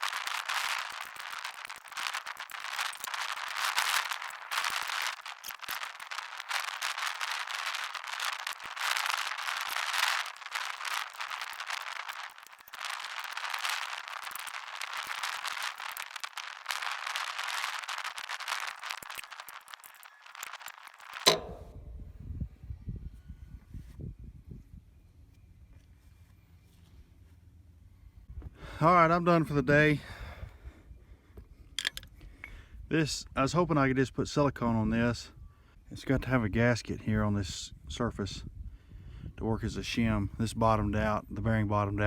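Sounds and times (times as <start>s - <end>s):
welder arc crackling: 0.0s - 22.0s.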